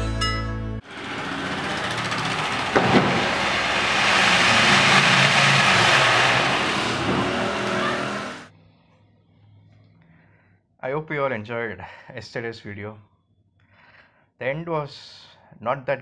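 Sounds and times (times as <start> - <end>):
train wheels rushing on rail: 0.8 - 8.5
sharp knocks: 0.9 - 8.4.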